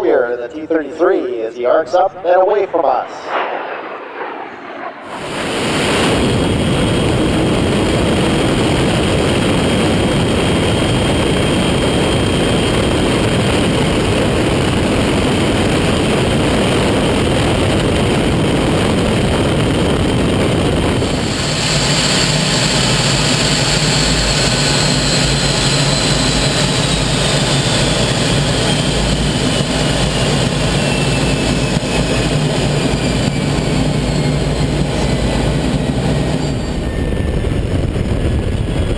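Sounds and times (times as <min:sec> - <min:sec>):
jet engine roar: 0:00.0 - 0:38.9
turbine whine falling in pitch: 0:02.0 - 0:38.9.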